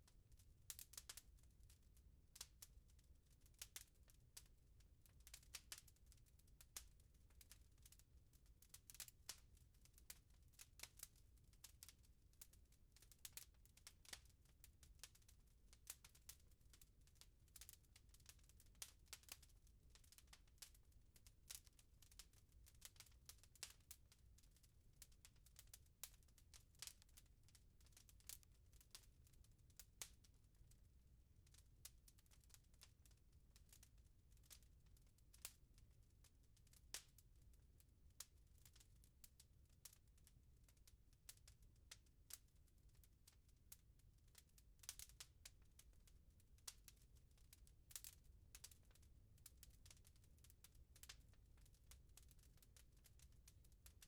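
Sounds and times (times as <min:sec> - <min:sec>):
wood fire crackling: 0:00.7 - 0:01.8, 0:02.4 - 0:02.8, 0:03.5 - 0:24.4, 0:25.0 - 0:30.8, 0:31.5 - 0:32.9, 0:33.6 - 0:34.6, 0:35.3 - 0:35.6, 0:36.6 - 0:37.5, 0:38.1 - 0:43.4, 0:44.3 - 0:45.6, 0:47.9 - 0:52.6.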